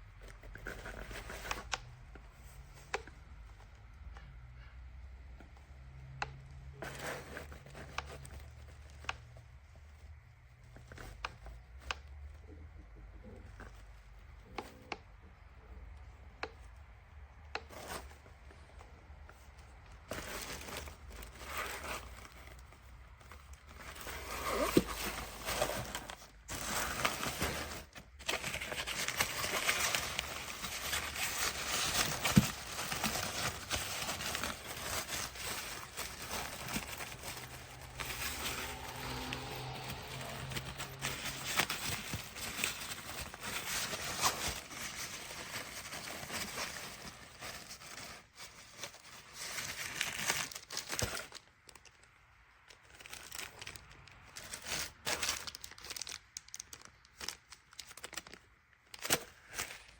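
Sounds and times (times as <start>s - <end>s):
packaging crinkling and tearing: 19.4s - 59.9s.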